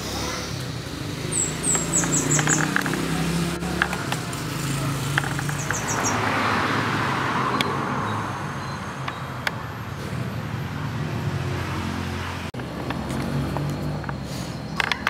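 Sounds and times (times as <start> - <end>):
vehicle passing: 0.0 - 15.0
low engine hum: 12.4 - 15.0.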